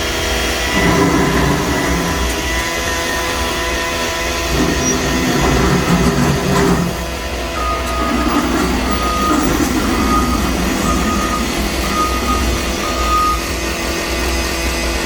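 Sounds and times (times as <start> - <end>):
diesel engine running: 0.0 - 15.0
reversing alarm beeping: 0.6 - 3.5, 4.5 - 14.0.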